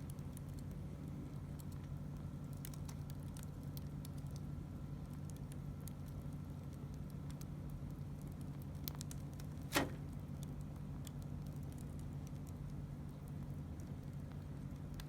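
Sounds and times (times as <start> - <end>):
campfire crackling: 0.0 - 15.0
steady low hum: 0.0 - 15.0
sharp fire pop: 9.7 - 10.2.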